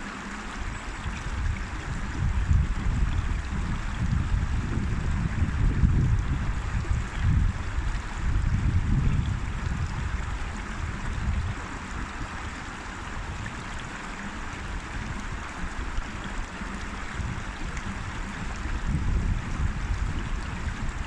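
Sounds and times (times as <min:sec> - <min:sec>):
river water rushing over rocks: 0:00.0 - 0:04.5, 0:06.2 - 0:21.0.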